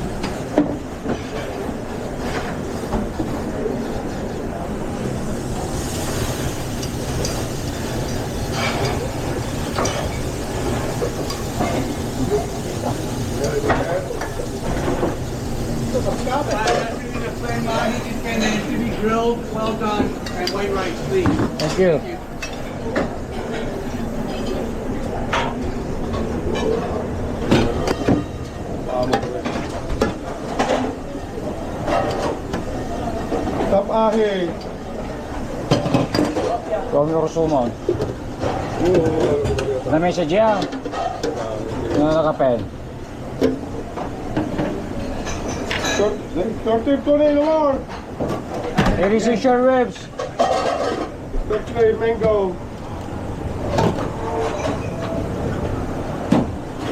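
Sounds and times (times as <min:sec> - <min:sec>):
pans and utensils clinking: 0:05.4 - 0:31.0, 0:43.4 - 0:46.2, 0:50.2 - 0:51.8, 0:53.7 - 0:55.2.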